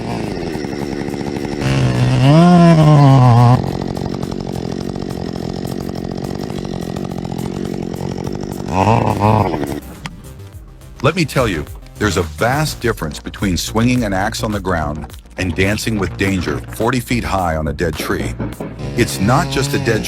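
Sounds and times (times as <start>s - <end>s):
chainsaw engine running: 0.0s - 10.5s, 13.4s - 20.0s.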